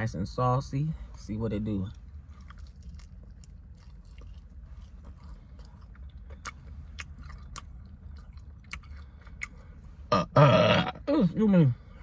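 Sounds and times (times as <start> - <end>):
low steady hum: 0.0 - 12.0
wet biting and chewing: 2.0 - 9.6.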